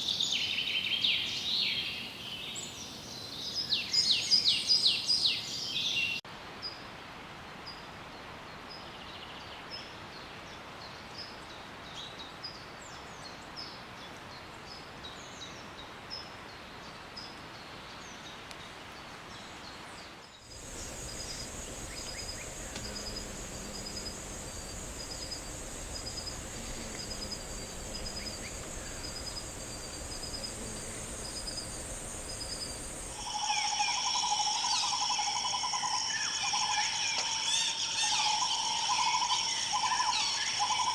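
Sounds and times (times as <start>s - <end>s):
steady hiss: 20.4s - 33.3s
high insect buzz: 20.4s - 33.8s
several birds calling: 20.5s - 34.0s.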